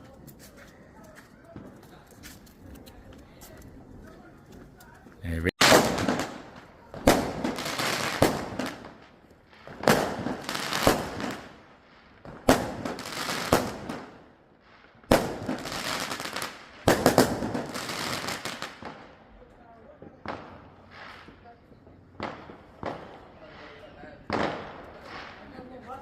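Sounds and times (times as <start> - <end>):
fireworks crackling: 5.3 - 26.0
fireworks bangs: 5.6 - 19.1, 19.9 - 26.0.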